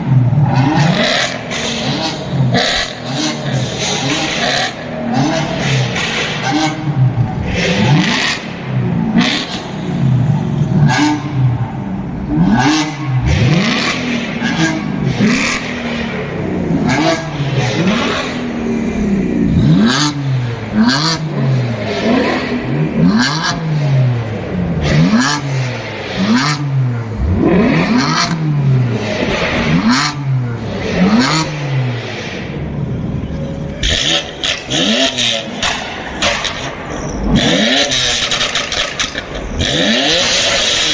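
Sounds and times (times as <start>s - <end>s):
sports car engine revving: 0.0s - 40.9s
exhaust cracks and pops: 35.6s - 40.9s.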